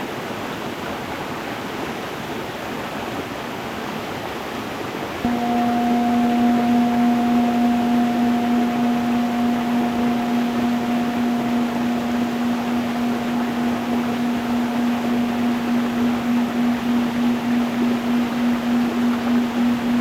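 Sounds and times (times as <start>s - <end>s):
singing bowl ringing: 5.3s - 20.0s.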